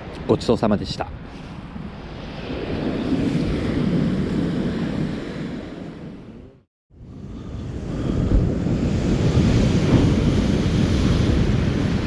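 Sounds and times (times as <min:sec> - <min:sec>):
wind buffeting microphone: 0:00.0 - 0:12.0
surf washing on beach: 0:07.2 - 0:12.0.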